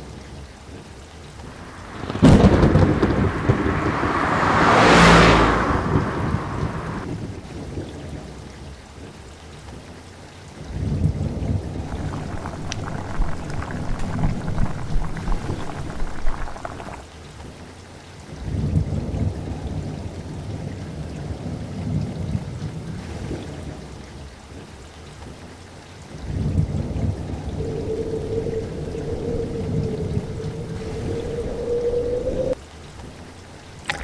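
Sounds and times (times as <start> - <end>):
steady rain: 0.0 - 34.0
rolling thunder rumbles: 1.4 - 7.4, 10.9 - 17.0, 26.2 - 32.6.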